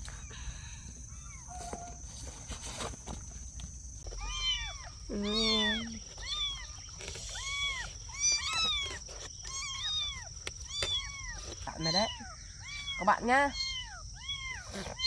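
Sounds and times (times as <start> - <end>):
kittens mewing: 4.1 - 15.0.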